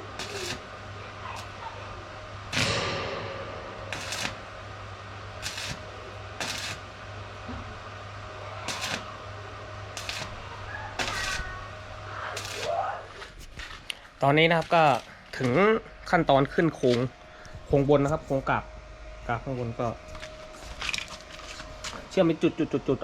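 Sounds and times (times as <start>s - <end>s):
arc welding crackling bursts: 0.0s - 3.0s, 3.8s - 4.6s, 5.3s - 7.2s, 8.5s - 13.3s
steady low hum: 0.0s - 23.0s.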